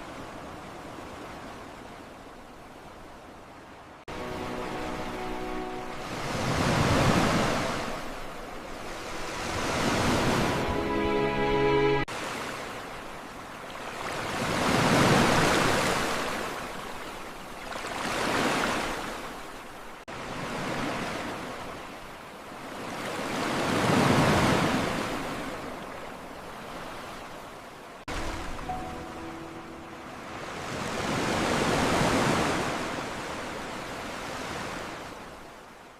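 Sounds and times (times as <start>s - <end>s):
ocean waves washing in: 4.0s - 35.9s
held musical chord: 4.1s - 12.1s, 28.1s - 31.0s.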